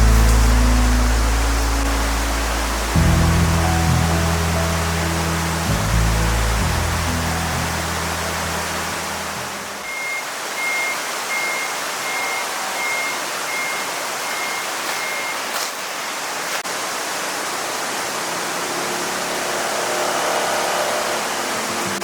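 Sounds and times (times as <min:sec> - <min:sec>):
background music: 0:00.0 - 0:09.8
short electronic beeps: 0:09.8 - 0:15.5.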